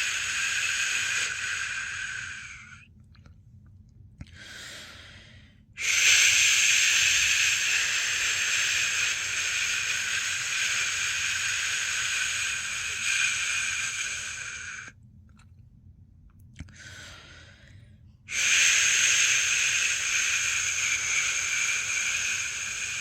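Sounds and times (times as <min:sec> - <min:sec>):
person shushing: 0:00.0 - 0:02.8, 0:05.8 - 0:14.9, 0:18.3 - 0:23.0.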